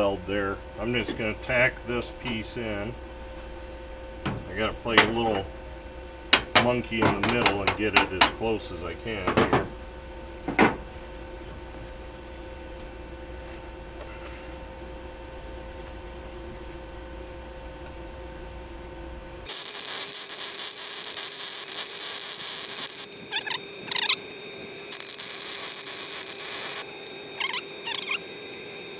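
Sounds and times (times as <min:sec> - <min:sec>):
welder humming: 0:19.5 - 0:28.9
welding arc crackling: 0:19.5 - 0:28.9.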